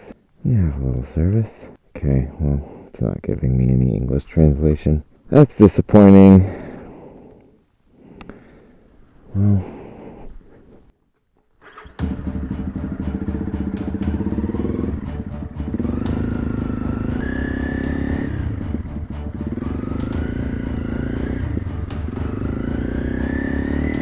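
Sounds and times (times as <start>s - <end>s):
motorcycle engine accelerating: 11.6s - 24.0s.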